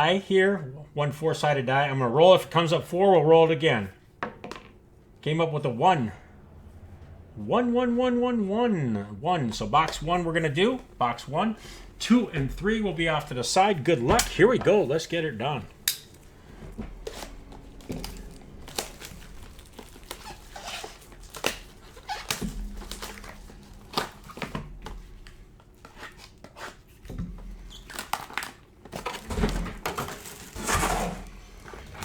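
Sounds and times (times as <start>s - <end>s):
plastic wrap crinkling: 14.2s - 25.3s, 27.8s - 32.0s
cardboard tearing: 17.0s - 24.5s.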